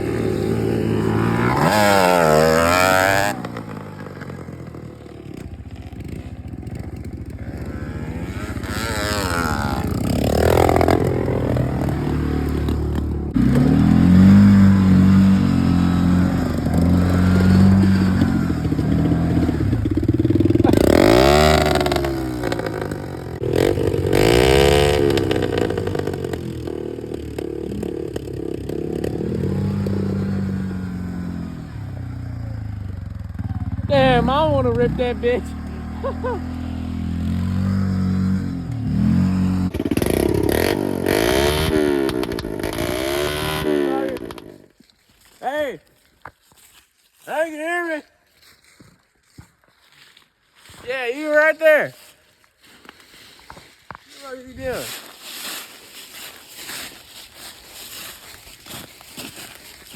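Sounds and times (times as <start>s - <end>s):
pit bike engine revving: 0.0s - 44.7s.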